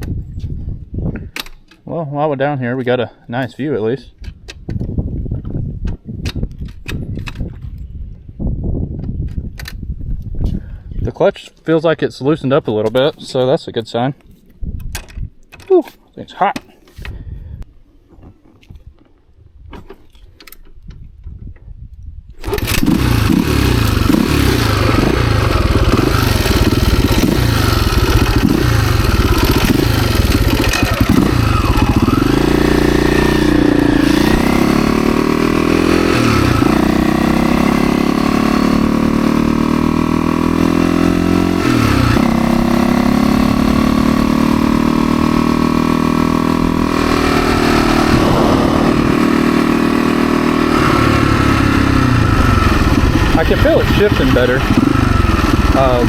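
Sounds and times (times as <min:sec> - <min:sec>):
dirt bike engine revving: 0:22.4 - 0:56.0.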